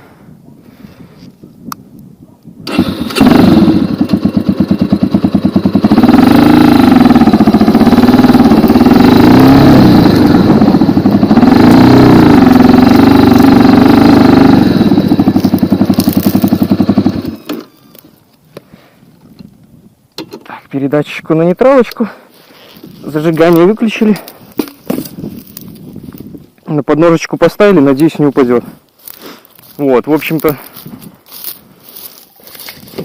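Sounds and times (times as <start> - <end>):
dirt bike engine revving: 2.7 - 18.0.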